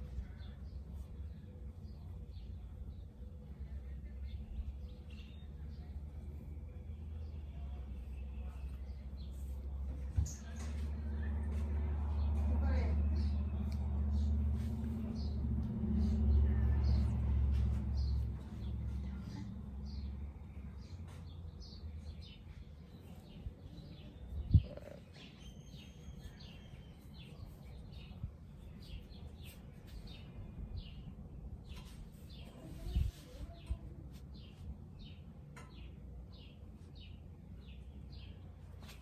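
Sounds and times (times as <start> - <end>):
steady low rumble: 0.0 - 25.2
birds chirping: 0.0 - 33.8.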